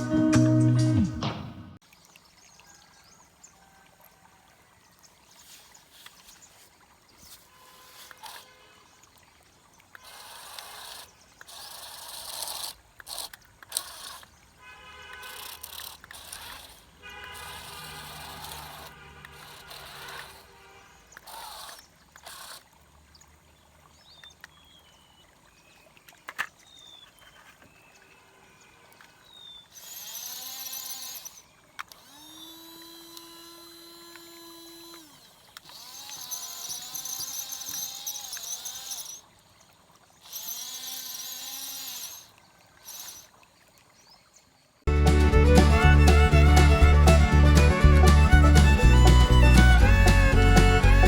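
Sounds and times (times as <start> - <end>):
toy electric motors whirring: 7.2 - 8.6, 9.9 - 14.4, 15.0 - 22.8, 29.7 - 39.4, 40.2 - 43.4, 45.2 - 51.0.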